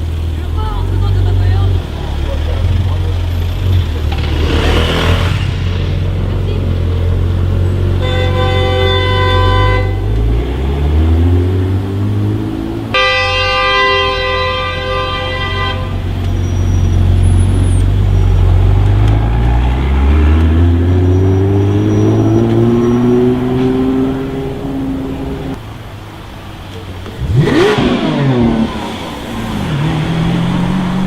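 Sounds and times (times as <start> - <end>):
car engine accelerating: 0.0 - 13.0, 16.0 - 31.0
car horn honks: 7.9 - 10.3, 12.9 - 17.6.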